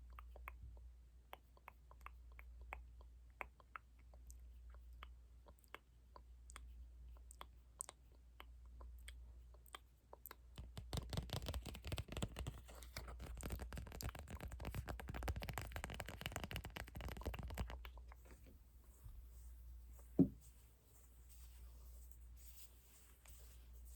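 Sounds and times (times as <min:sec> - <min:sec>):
small clicks and taps: 0:09.0 - 0:18.2
rapid crackling and scratching: 0:10.6 - 0:18.2.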